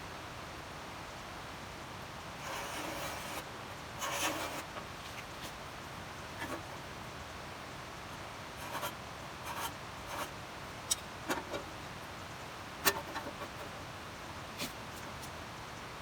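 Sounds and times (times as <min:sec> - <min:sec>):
short scrapes and clicks: 0:02.4 - 0:03.4, 0:04.0 - 0:05.6, 0:06.4 - 0:06.7, 0:12.8 - 0:13.8.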